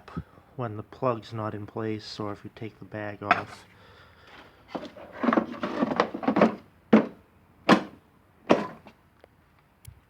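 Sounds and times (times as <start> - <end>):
hard objects scraping and clattering: 3.3 - 3.7, 4.3 - 8.9
sharp knocks: 6.5 - 8.9.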